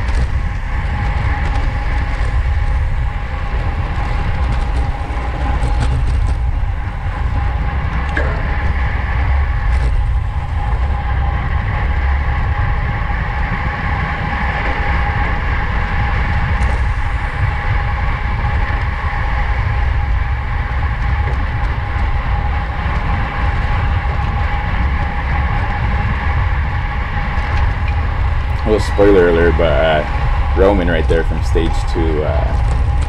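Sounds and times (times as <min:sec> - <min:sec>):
high whine: 0:00.0 - 0:33.0
wind buffeting microphone: 0:00.0 - 0:33.0.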